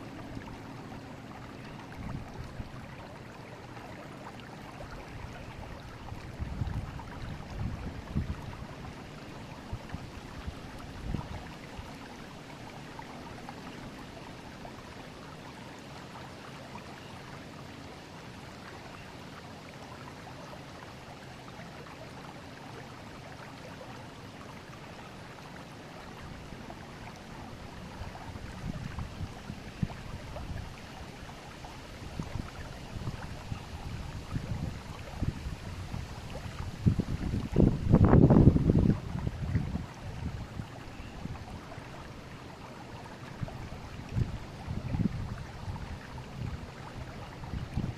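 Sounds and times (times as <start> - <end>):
river water flowing: 0.0 - 47.9
wind buffeting microphone: 1.9 - 3.0, 5.2 - 9.0, 9.6 - 11.8, 27.6 - 30.8, 32.0 - 41.6, 43.4 - 47.9.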